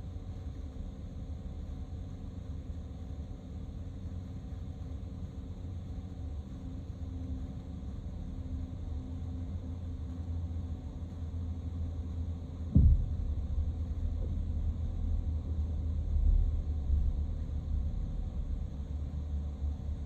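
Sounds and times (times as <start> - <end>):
vehicle driving rumble: 12.6 - 20.0
sharp thump: 12.7 - 14.4.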